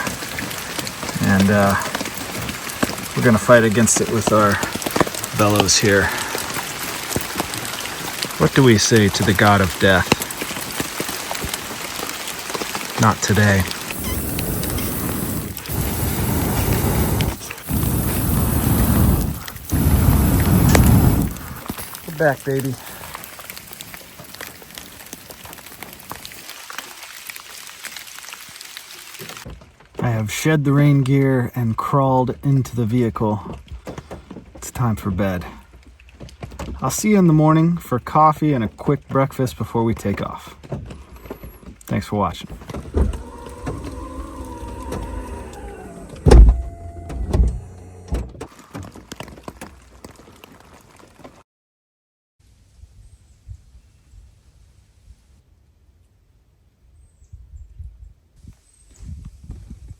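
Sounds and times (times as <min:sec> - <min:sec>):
raindrops ticking: 0:00.0 - 0:30.1
steady rain falling: 0:00.0 - 0:31.3, 0:32.7 - 0:51.4
electric motor whining: 0:14.0 - 0:21.3, 0:42.9 - 0:48.3
heavy thumps: 0:42.4 - 0:48.4.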